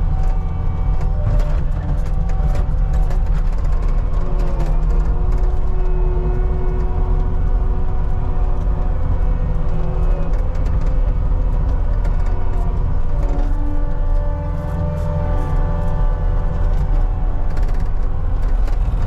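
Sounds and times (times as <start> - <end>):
track loader diesel engine: 0.0 - 19.0.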